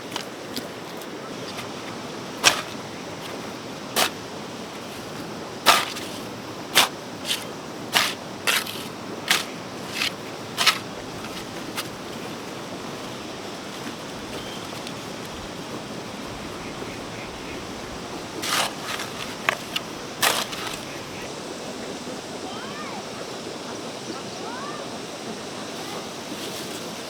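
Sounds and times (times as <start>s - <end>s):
short scrapes: 4.8s - 12.0s, 18.4s - 21.2s.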